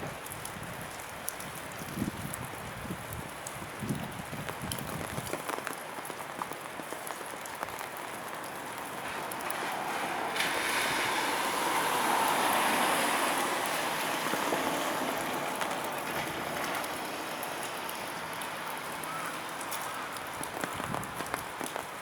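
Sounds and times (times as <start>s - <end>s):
train wheels on rail: 14.2s - 17.6s.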